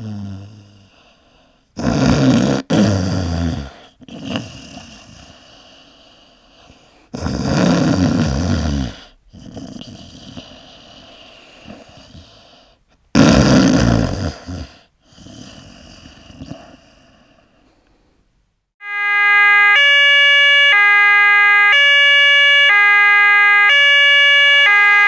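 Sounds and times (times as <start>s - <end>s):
quiet breathing: 0.0s - 1.8s, 3.2s - 7.2s, 8.6s - 13.0s, 14.3s - 18.4s
person snoring: 0.0s - 17.6s.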